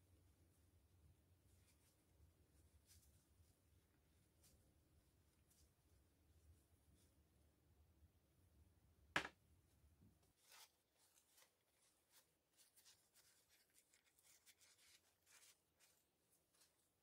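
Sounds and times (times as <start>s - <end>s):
faint rubbing and small taps: 10.0s - 17.0s.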